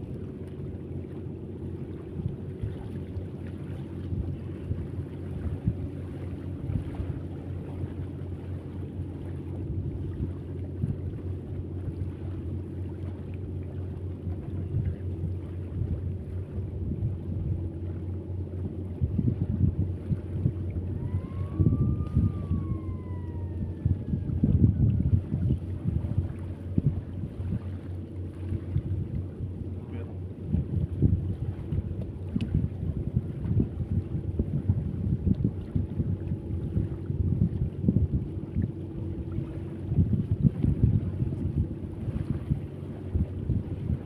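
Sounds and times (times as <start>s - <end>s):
low engine hum: 0.0s - 44.0s
wind buffeting microphone: 0.0s - 44.0s
rising and falling whistle: 20.9s - 25.1s.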